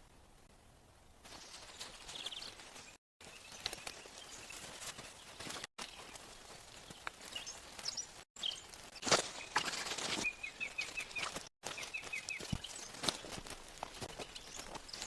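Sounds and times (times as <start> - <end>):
small bird chirping: 6.8 - 8.7, 9.3 - 13.4, 14.0 - 15.0.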